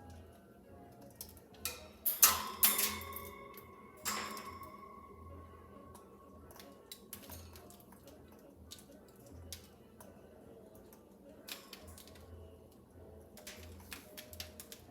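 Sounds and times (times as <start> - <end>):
low steady hum: 0.0 - 14.9
faint clicks and taps: 13.4 - 14.9.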